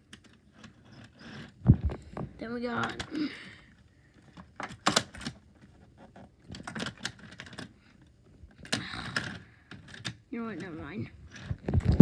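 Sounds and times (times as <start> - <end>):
plastic toy train cars clattering: 0.0 - 1.6, 4.2 - 7.8, 8.5 - 12.0.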